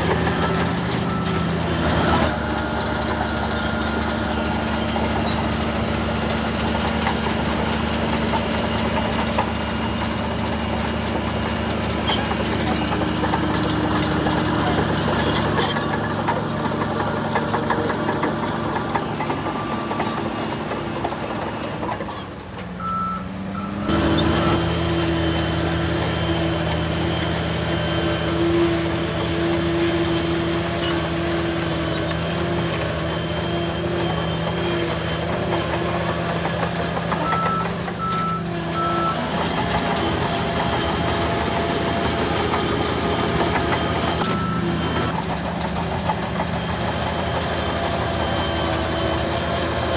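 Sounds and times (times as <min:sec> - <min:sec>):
bulldozer diesel engine running: 0:00.0 - 0:49.9
reversing alarm beeping: 0:00.1 - 0:05.8, 0:22.8 - 0:28.4, 0:32.9 - 0:45.1.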